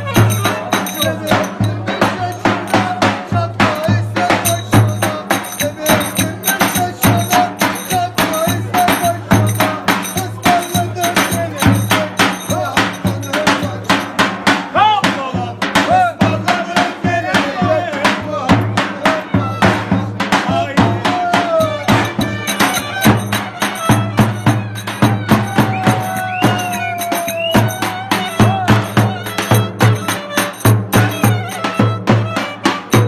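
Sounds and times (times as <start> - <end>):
fast driving drum beat: 0.0 - 33.0
folk dance music: 0.0 - 33.0
bending melody line: 21.5 - 33.0.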